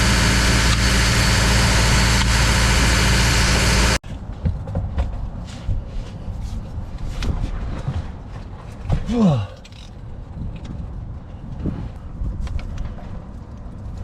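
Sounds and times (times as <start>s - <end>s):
compressor diesel engine running: 0.0s - 4.0s.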